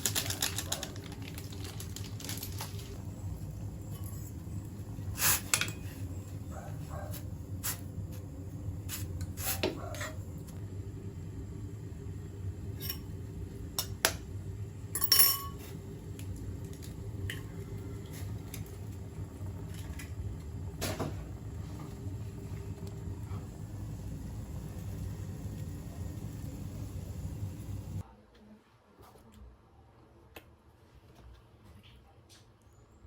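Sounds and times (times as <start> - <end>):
small hard objects clinking: 0.0 - 3.0
steady low hum: 0.0 - 28.0.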